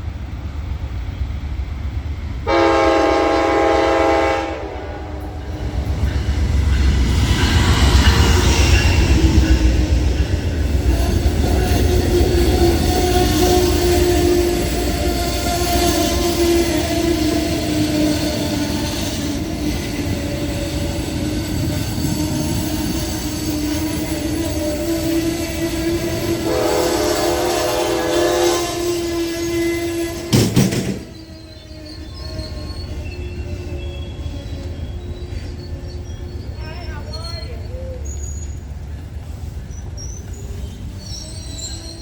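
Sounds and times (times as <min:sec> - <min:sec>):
train rumbling past: 0:00.0 - 0:42.0
train horn chord: 0:02.5 - 0:05.5, 0:26.0 - 0:29.3.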